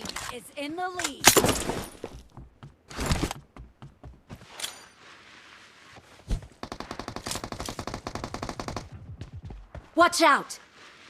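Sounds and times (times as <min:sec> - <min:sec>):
game thuds and knocks: 0:01.3 - 0:04.6.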